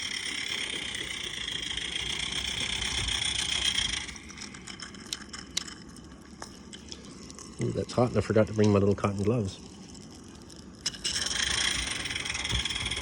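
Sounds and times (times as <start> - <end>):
model steam locomotive running: 0.0 - 6.5, 10.8 - 13.0.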